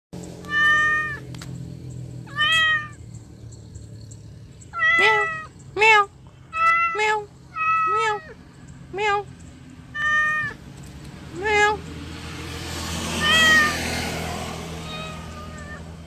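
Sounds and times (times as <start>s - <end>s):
cat meowing: 0.4s - 1.2s, 2.3s - 3.0s, 4.7s - 8.4s, 9.9s - 10.6s, 13.2s - 13.8s, 14.8s - 16.0s.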